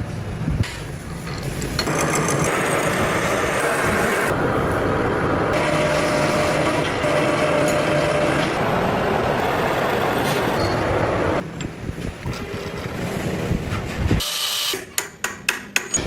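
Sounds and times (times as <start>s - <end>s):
metal lathe machining: 1.8s - 11.4s.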